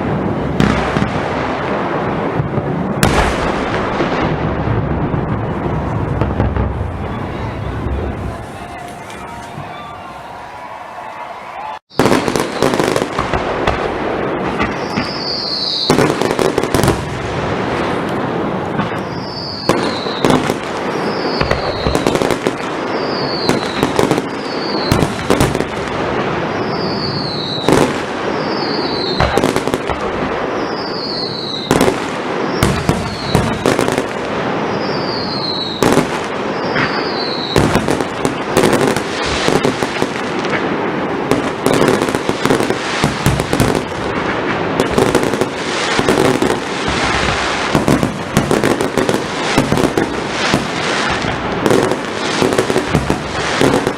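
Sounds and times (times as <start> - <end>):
firework bangs: 0.0 - 53.9
fireworks crackling: 0.0 - 53.9
firework whistles falling in pitch: 7.0 - 13.1, 14.7 - 16.4, 18.9 - 25.5, 26.5 - 29.5, 30.5 - 34.0, 34.6 - 38.0.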